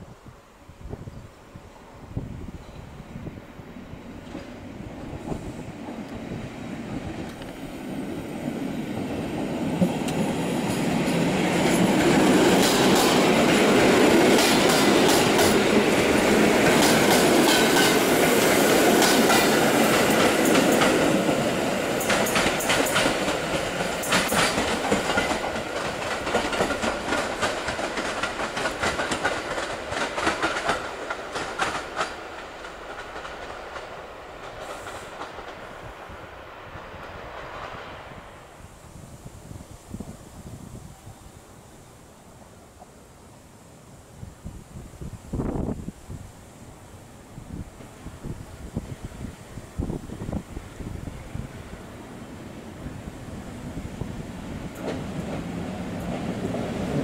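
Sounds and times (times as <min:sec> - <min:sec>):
electric train passing at speed: 0:00.0 - 0:57.0
wheels clacking over rail joints: 0:08.5 - 0:35.8, 0:54.6 - 0:57.0.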